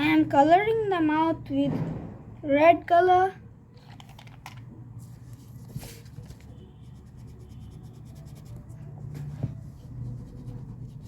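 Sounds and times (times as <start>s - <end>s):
low steady hum: 5.0s - 11.0s
felt-tip pen scratching on paper: 5.7s - 11.0s.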